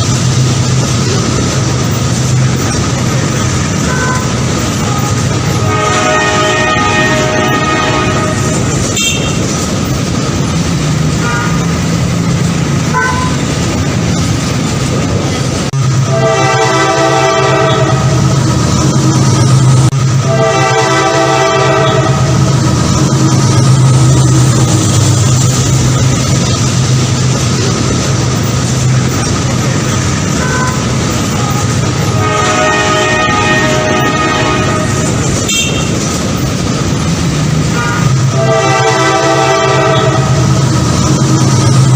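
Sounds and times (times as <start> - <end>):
train rumbling: 0.0 - 41.9
train horn toots: 3.8 - 9.6, 11.1 - 11.8, 12.9 - 13.5, 15.9 - 18.3, 20.1 - 22.5, 30.3 - 36.1, 37.6 - 40.6.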